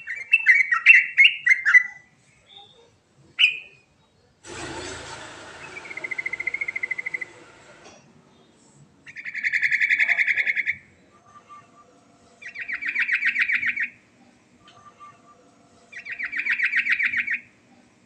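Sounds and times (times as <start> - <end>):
hiss: 4.4 - 8.8.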